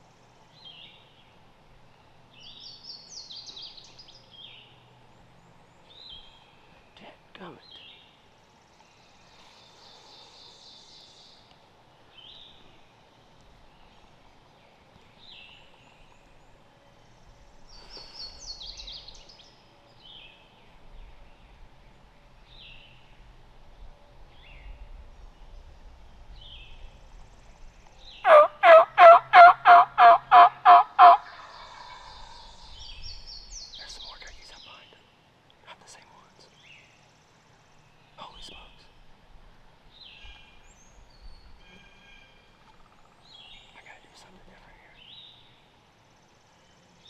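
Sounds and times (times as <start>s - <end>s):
faint songbird chirps: 0.0s - 47.0s
turkey yelps: 28.2s - 32.4s.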